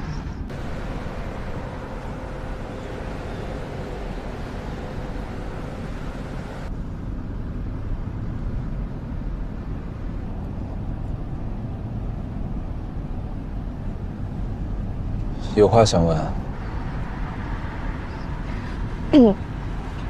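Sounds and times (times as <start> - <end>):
high hiss: 0.5 - 6.7
car driving from inside cabin: 0.5 - 15.4.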